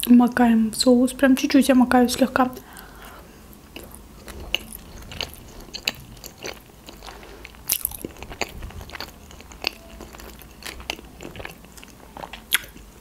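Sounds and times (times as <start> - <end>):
chewing with crisp crunches: 2.6 - 13.0
wet mouth clicks: 7.8 - 12.9.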